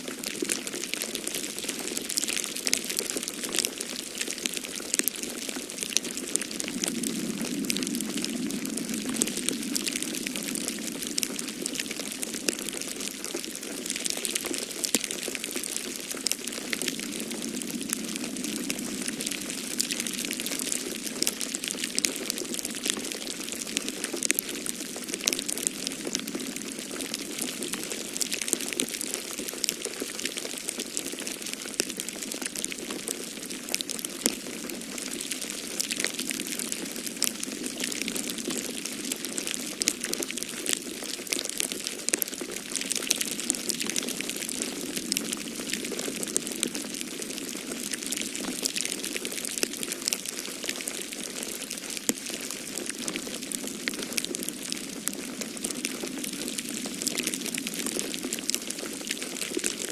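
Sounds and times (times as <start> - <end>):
storm wind rushing: 6.6 - 11.8.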